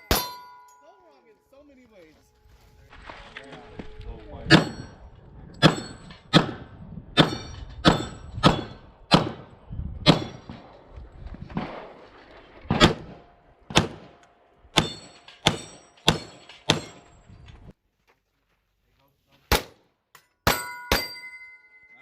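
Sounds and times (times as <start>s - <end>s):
steel plate ringing: 0.0s - 1.7s, 14.8s - 17.2s, 20.4s - 22.0s
pistol shots: 5.6s - 10.7s, 12.7s - 14.2s, 14.8s - 17.0s.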